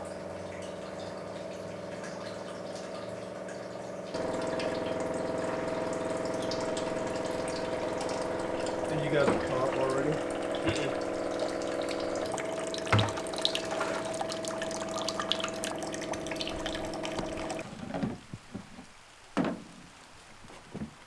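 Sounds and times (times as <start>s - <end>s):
pump humming: 0.0s - 18.2s
liquid trickling and dripping: 0.0s - 18.3s
knock: 12.9s - 13.2s.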